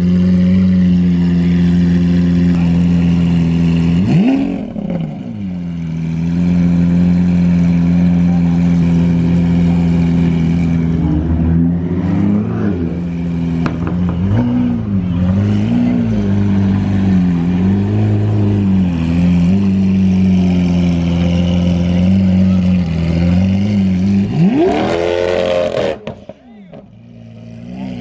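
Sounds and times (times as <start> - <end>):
car engine idling and revving: 0.0 - 28.0.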